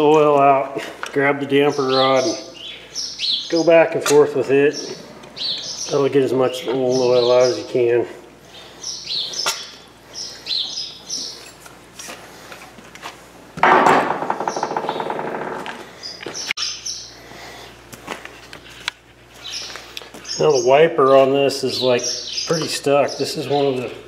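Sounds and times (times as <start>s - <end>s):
small birds chirping: 1.6s - 11.6s, 16.0s - 17.6s, 19.3s - 24.0s
rough rattling noise: 13.6s - 15.9s.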